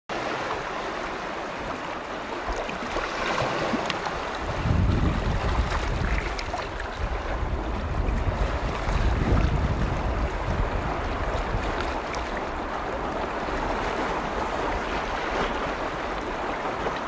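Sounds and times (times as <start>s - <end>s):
small waves lapping on shore: 0.1s - 17.0s
wind buffeting microphone: 3.7s - 17.0s.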